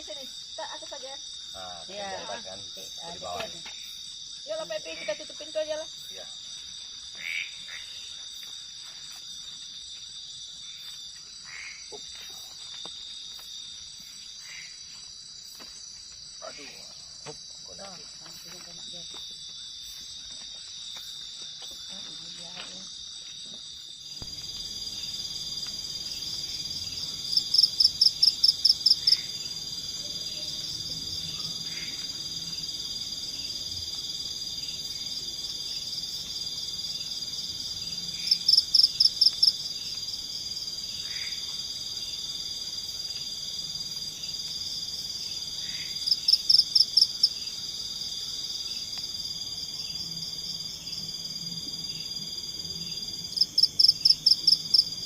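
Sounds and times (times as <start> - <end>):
high-pitched insect drone: 0.0 - 6.4
frogs: 0.0 - 55.0.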